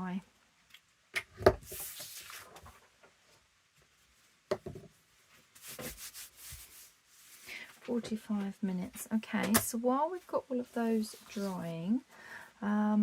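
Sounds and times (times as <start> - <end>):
paper sheets sliding and rubbing: 1.6 - 2.8, 5.4 - 8.0, 10.5 - 12.0.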